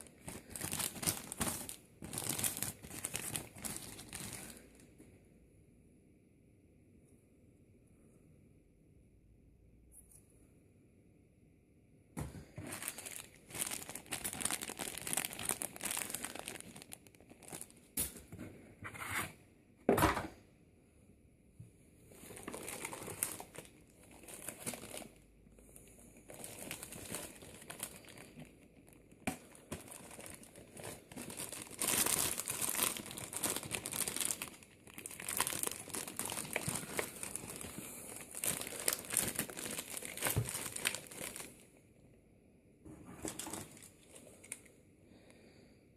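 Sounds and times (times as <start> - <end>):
packaging crinkling and rustling: 0.0 - 4.8, 12.2 - 18.3, 22.1 - 41.6, 43.0 - 44.7.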